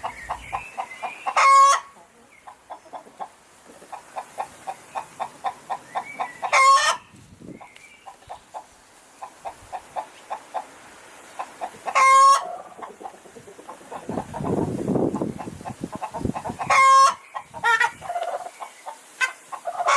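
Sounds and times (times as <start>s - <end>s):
chickens clucking: 0.0s - 19.9s
shrill chicken call: 12.0s - 12.6s.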